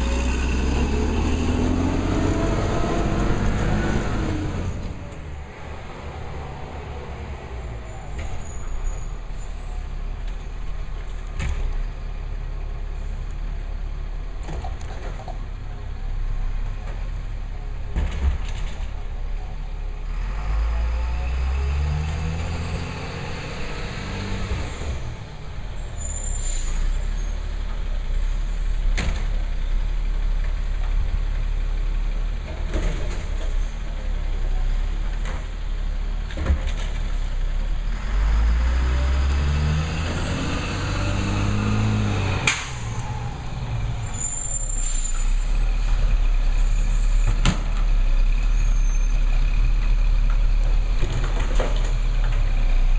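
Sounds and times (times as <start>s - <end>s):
garbage truck engine revving: 0.0s - 5.0s, 37.8s - 46.2s.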